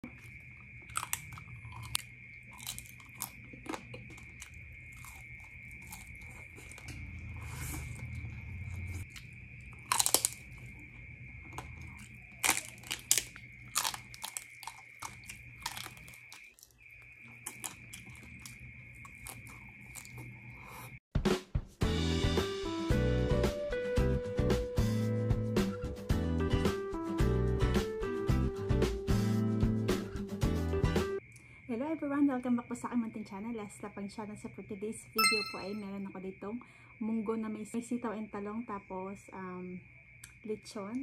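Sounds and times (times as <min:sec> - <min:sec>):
crunching and chewing crispy skin: 0:00.0 - 0:21.0.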